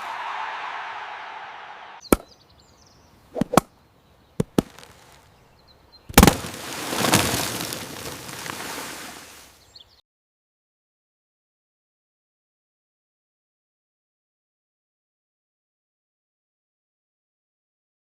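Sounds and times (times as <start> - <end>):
sharp cracks or knocks: 6.1 - 8.3.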